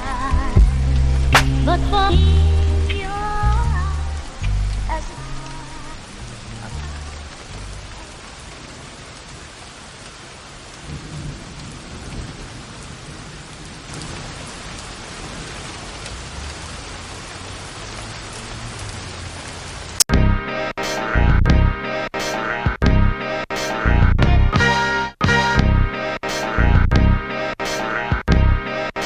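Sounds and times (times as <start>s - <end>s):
thunder rumbles: 0.0s - 8.7s, 10.8s - 17.2s
heavy rain: 0.0s - 29.0s
hip-hop beat: 0.5s - 3.9s, 20.0s - 29.0s.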